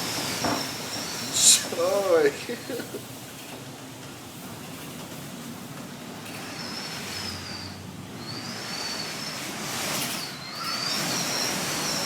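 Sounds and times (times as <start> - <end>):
thin high whistle: 0.6 - 1.7, 6.7 - 11.7.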